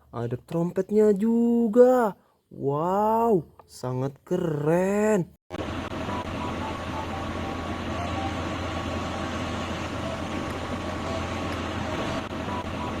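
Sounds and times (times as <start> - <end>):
vehicle engine running: 5.5 - 13.0.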